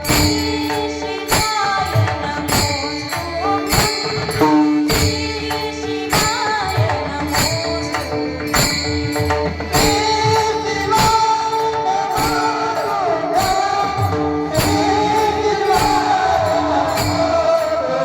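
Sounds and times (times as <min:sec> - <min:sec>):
instrumental accompaniment: 0:00.0 - 0:18.0
percussion strikes: 0:00.0 - 0:18.0
woman singing: 0:00.0 - 0:18.0.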